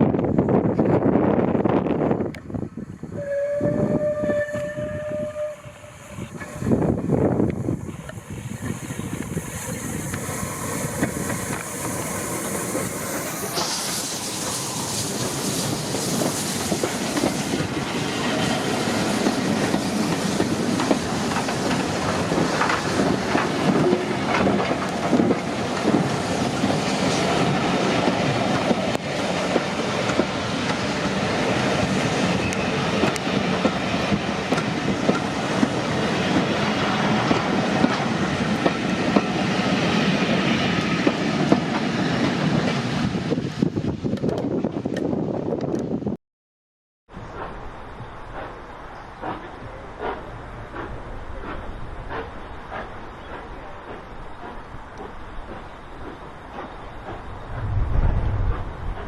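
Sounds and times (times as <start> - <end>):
train wheels clicking over rail joints: 6.3 - 42.9, 47.2 - 57.7.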